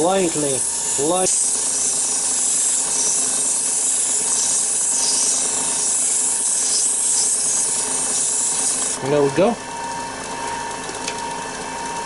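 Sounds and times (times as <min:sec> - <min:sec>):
sandpaper rubbing hiss on wood: 0:00.0 - 0:09.0
wood lathe motor hum: 0:00.0 - 0:12.0.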